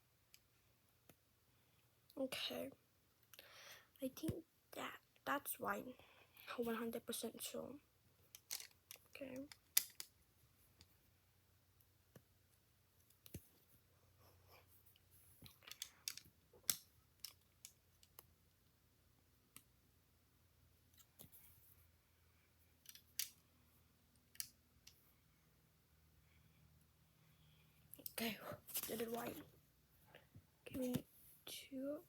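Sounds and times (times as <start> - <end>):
plastic bricks clicking together: 8.3 - 10.1, 15.5 - 18.3, 22.8 - 23.4.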